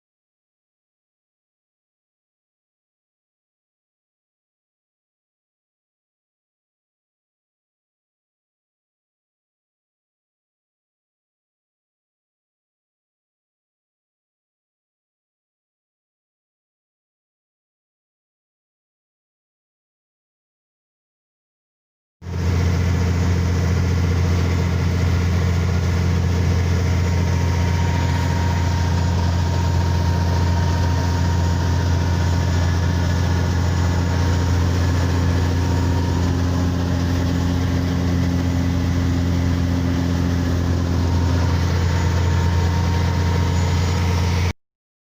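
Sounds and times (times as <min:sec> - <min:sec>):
motorboat engine droning: 0:22.3 - 0:44.5.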